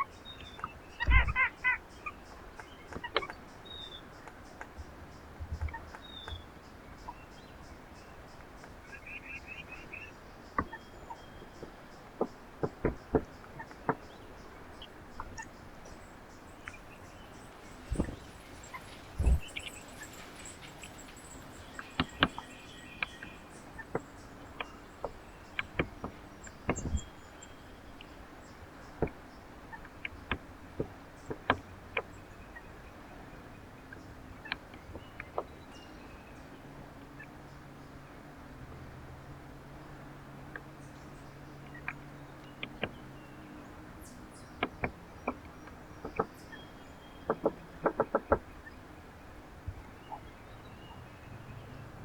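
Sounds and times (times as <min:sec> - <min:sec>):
faint high bird chirps: 0:14.8 - 0:28.1
birds pecking at feeder: 0:16.6 - 0:27.0.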